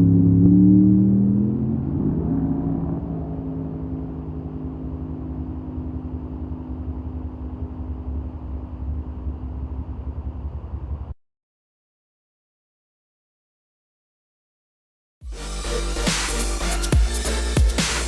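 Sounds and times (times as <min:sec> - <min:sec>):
truck engine rumbling: 0:00.0 - 0:11.2.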